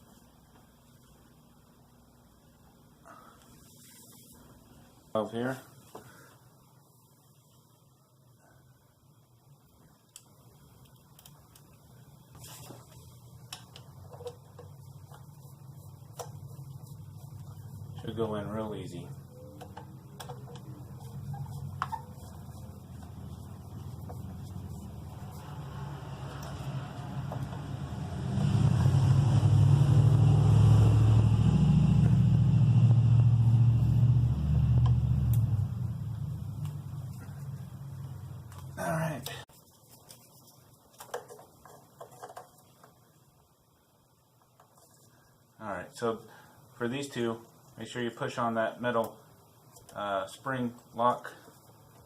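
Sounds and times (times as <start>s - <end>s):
steady low hum: 0.0s - 40.8s
small car parts clicking and knocking: 13.5s - 15.3s, 19.6s - 22.0s, 40.9s - 43.0s
vehicle engine rumbling: 19.1s - 38.8s.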